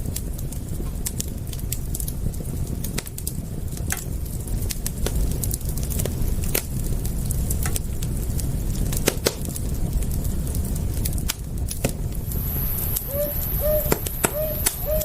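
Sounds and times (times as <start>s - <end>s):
wood fire crackling: 0.0s - 15.0s
thin high steady tone: 12.3s - 15.0s.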